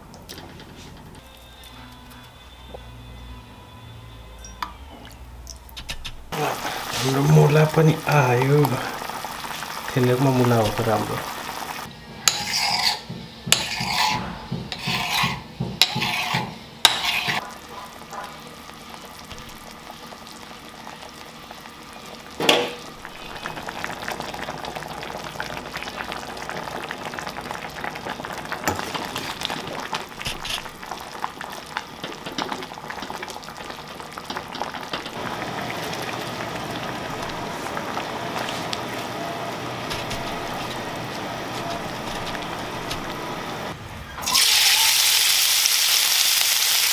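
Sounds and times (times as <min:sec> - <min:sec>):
food sizzling in pan: 0:06.3 - 0:46.9
utensil scraping pan: 0:12.2 - 0:17.4, 0:30.2 - 0:30.7.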